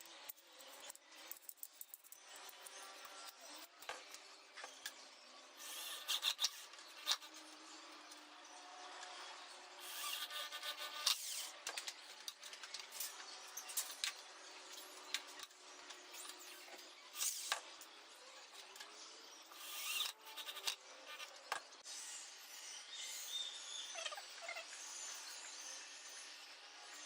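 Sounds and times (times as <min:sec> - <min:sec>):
tool scraping and rubbing: 0:05.6 - 0:07.5, 0:09.8 - 0:11.6, 0:19.5 - 0:21.4.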